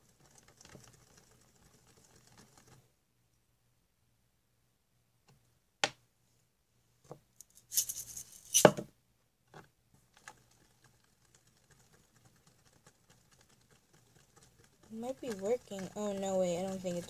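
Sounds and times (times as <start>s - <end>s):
sticky slime ticks: 10.2s - 17.0s.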